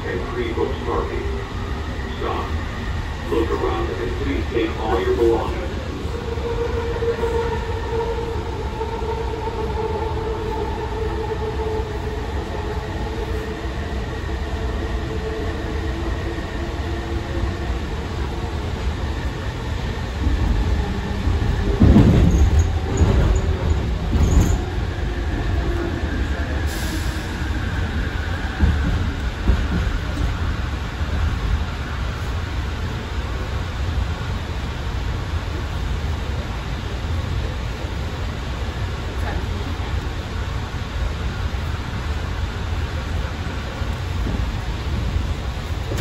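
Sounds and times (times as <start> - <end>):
train rumbling: 0.0 - 46.0.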